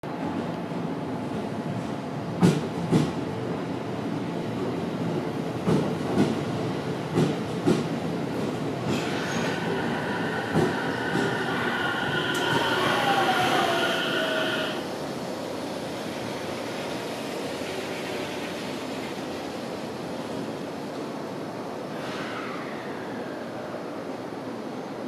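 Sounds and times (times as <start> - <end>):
train brake whine and squeal: 8.9 - 14.9, 22.0 - 23.7.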